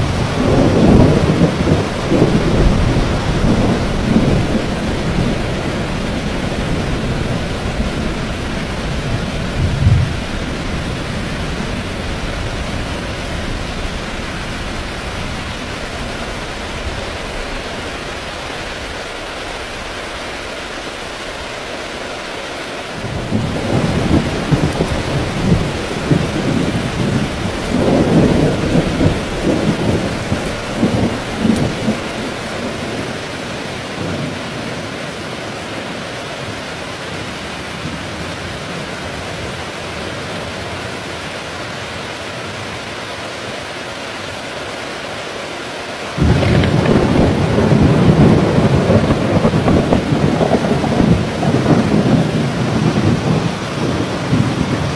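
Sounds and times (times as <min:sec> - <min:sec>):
thunder rumbling: 0:00.0 - 0:20.2, 0:23.0 - 0:34.8, 0:46.2 - 0:54.9
heavy rain falling: 0:00.0 - 0:54.9.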